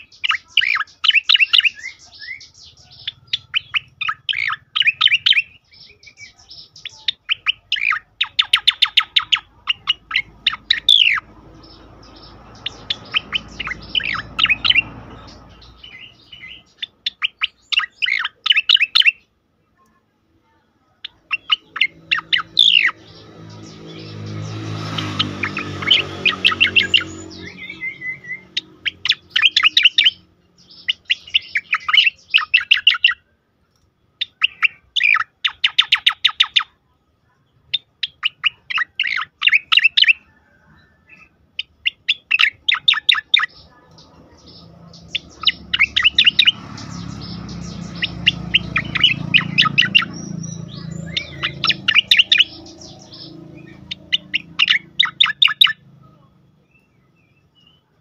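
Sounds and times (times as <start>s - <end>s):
bird giving rapid sharp calls: 0.0s - 19.2s, 21.0s - 33.2s, 41.6s - 55.8s.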